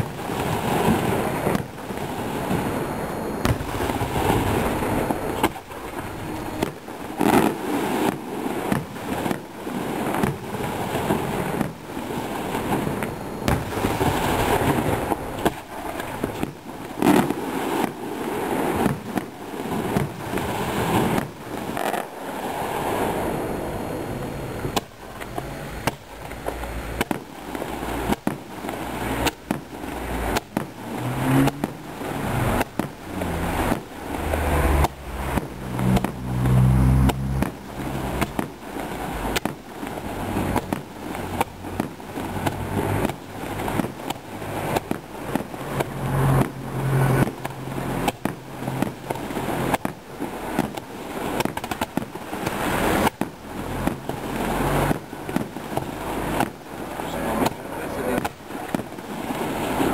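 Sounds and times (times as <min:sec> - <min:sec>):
firework shells bursting: 0:03.4 - 0:20.4.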